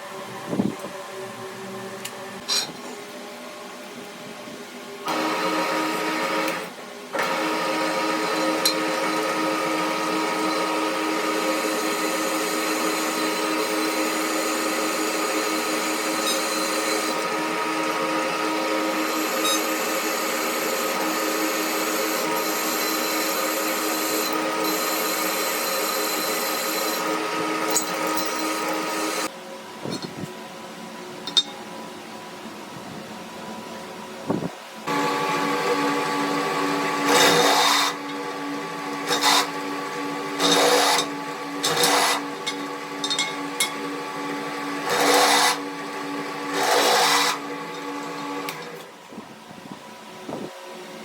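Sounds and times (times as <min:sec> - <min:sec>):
power tool motor running: 0:05.1 - 0:29.3, 0:34.9 - 0:48.8.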